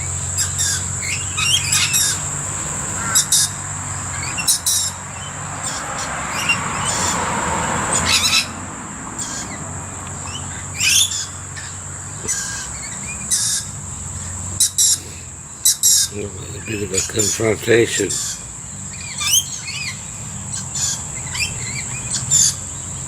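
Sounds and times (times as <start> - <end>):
steady high-pitched whine: 0.0 - 5.4
birds screeching and chirping: 0.0 - 23.0.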